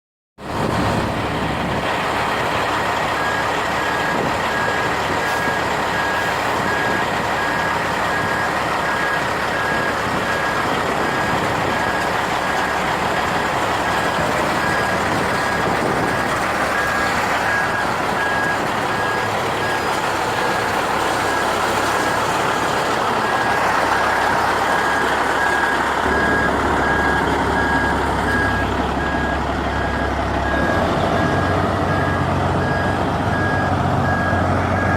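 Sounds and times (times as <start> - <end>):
truck engine running: 0.4 - 34.9
reversing alarm beeping: 3.1 - 34.9.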